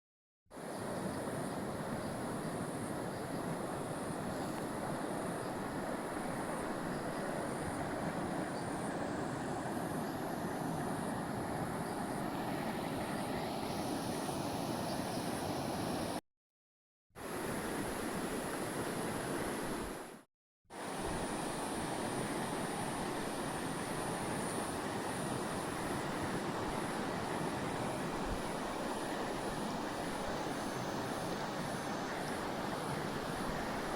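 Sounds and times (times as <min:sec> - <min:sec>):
creek flowing: 0:00.6 - 0:16.1, 0:25.3 - 0:33.9.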